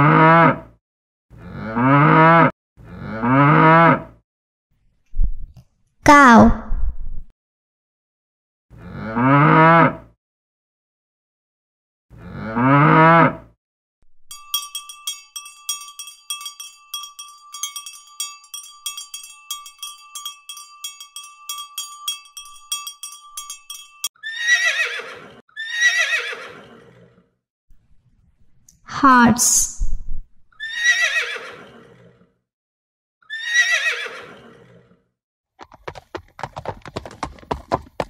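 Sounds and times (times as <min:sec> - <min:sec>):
cowbell clanking: 0:14.2 - 0:24.1
horse whinnying: 0:24.2 - 0:27.2, 0:30.6 - 0:32.2, 0:33.2 - 0:35.0.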